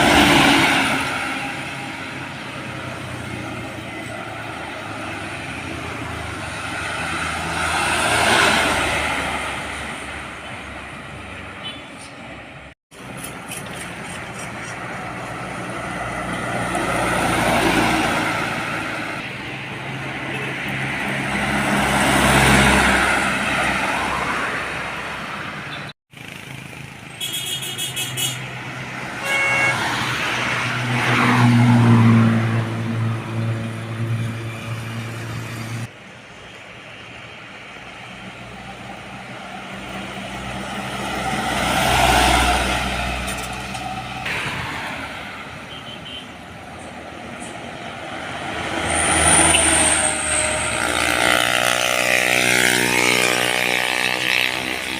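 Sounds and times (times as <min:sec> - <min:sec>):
trucks and buses passing: 0:00.0 - 0:54.9
vehicle horn: 0:11.6 - 0:12.0, 0:27.2 - 0:28.5, 0:29.1 - 0:30.1, 0:45.6 - 0:46.4.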